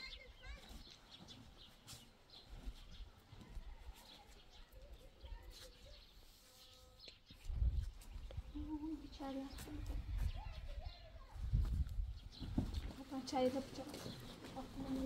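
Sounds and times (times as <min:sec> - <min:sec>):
wind rumble on microphone: 0:07.4 - 0:12.9.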